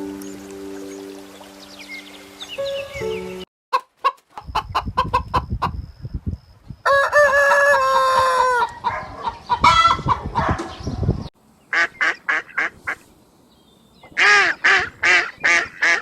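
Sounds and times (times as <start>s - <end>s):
chickens clucking: 3.7s - 5.8s, 7.3s - 10.9s
rooster crowing: 6.8s - 10.1s.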